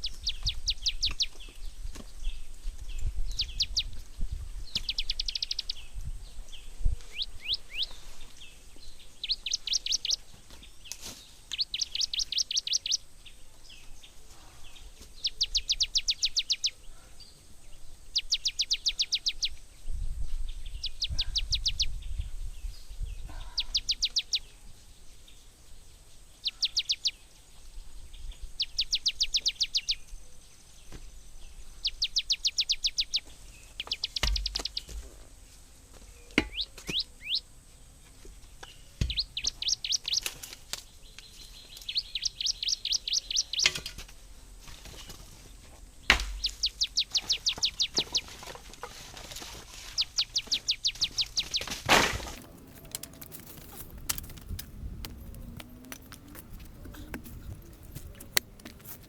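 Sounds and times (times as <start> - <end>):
bird singing high trills: 4.8 - 5.9, 7.1 - 8.0, 11.5 - 13.0, 39.1 - 40.3, 41.4 - 43.7, 46.4 - 48.3, 50.0 - 51.7.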